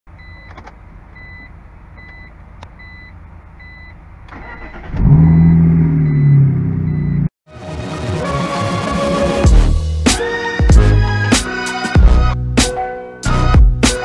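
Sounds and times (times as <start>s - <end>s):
car warning chime beeping: 0.1s - 0.6s, 1.2s - 7.3s
car engine revving: 4.6s - 7.3s.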